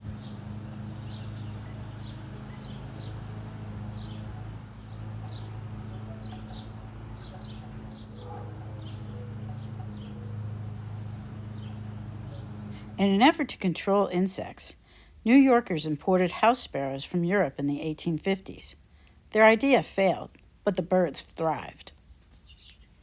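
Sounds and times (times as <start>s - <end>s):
sparrows chirping: 0.0s - 18.8s, 19.4s - 23.0s
steady low hum: 0.0s - 22.2s.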